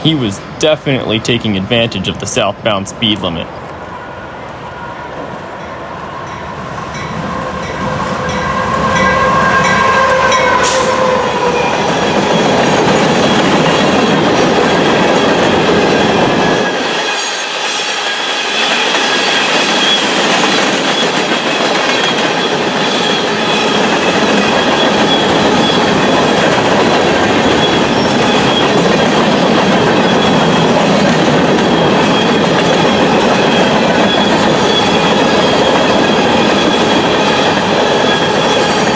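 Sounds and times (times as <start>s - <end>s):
train pitched tone: 0.0s - 38.9s
train rumbling and clattering: 0.0s - 38.9s
high wheel squeal: 16.0s - 38.9s.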